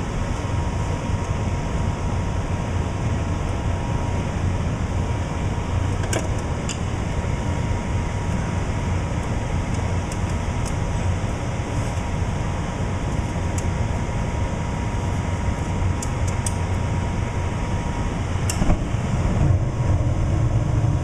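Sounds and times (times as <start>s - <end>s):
gas furnace humming: 0.0s - 21.0s.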